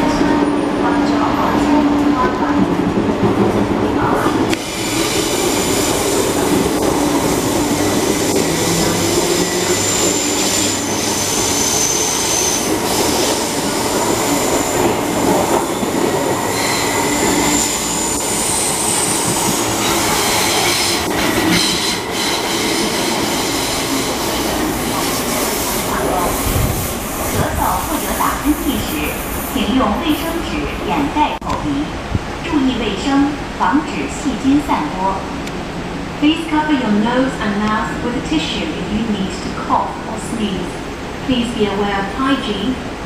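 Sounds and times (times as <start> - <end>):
train wheels rumbling on rail: 0.0 - 43.0
high-pitched wheel squeal: 16.4 - 19.2.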